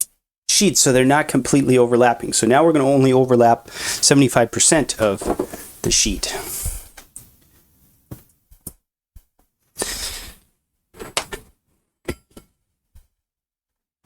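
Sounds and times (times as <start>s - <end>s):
paper and foil rustling: 4.6s - 6.4s.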